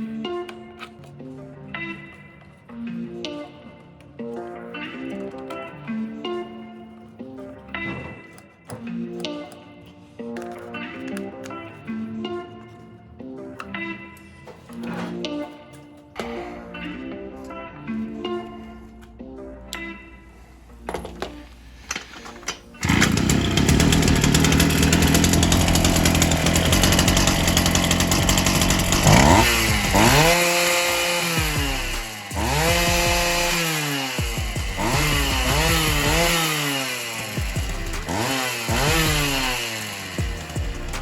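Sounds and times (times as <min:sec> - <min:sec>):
clicks before engine start: 0:21.9 - 0:25.2
brushcutter engine revving: 0:22.8 - 0:41.0.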